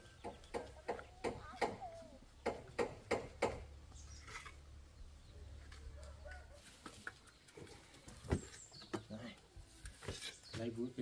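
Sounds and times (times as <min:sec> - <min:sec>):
sharp knocks: 0:02.4 - 0:03.7.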